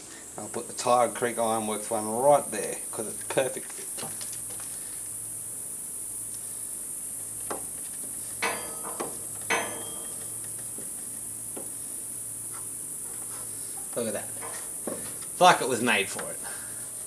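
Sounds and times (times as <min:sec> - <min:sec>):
insects chirring: 0:00.0 - 0:17.0
brief ring: 0:08.4 - 0:10.4.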